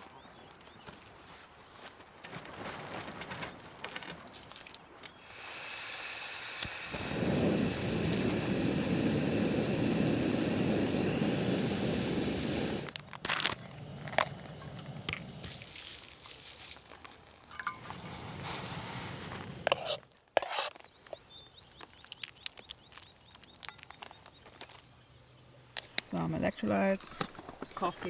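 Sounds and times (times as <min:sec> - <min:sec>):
gas stove burner rushing: 0:05.2 - 0:15.6
gas hissing: 0:05.2 - 0:15.9, 0:17.6 - 0:20.0.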